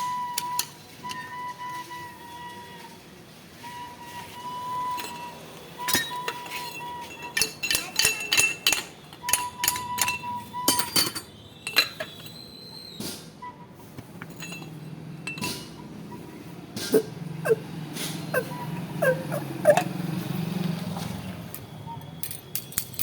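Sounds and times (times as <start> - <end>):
metal parts clinking and knocking: 4.9 - 12.4, 14.2 - 15.8, 22.0 - 23.0.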